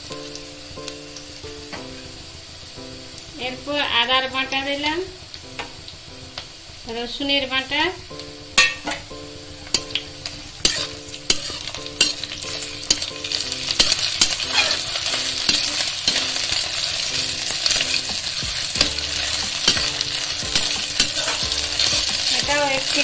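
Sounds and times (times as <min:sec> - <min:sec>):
food sizzling in oil: 0:00.0 - 0:23.0
spatula scraping and knocking pan: 0:09.7 - 0:23.0.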